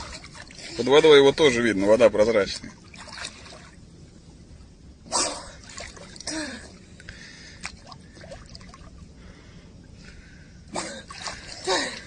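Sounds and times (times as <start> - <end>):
sea water splashing and trickling: 0.0 - 4.0, 5.4 - 9.3, 10.7 - 12.0.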